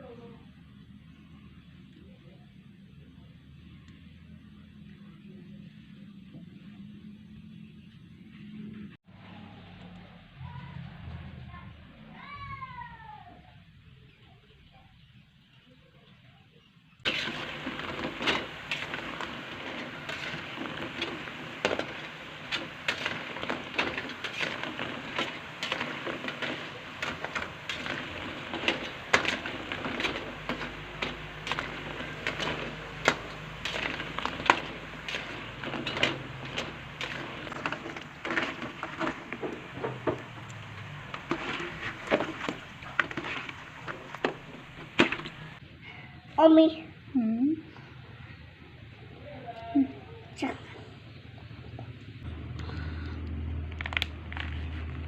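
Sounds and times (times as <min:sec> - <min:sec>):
dough balls sizzling in oil: 0:17.0 - 0:45.6.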